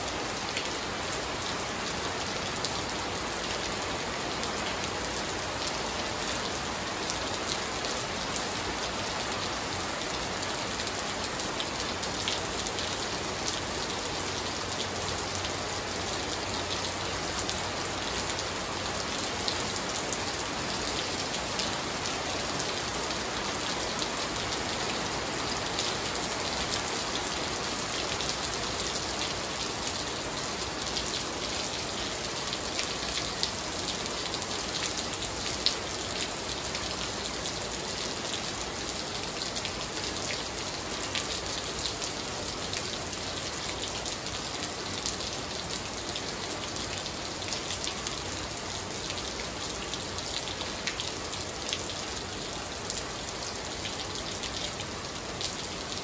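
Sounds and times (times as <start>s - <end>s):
heavy rain on tiles and foliage: 0.0s - 56.0s.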